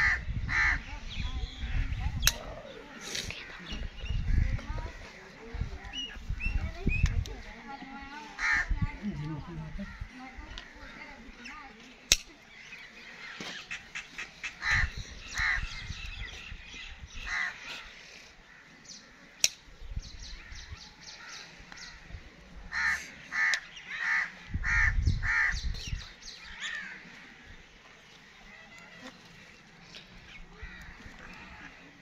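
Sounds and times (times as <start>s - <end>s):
birds calling: 0.0s - 32.0s.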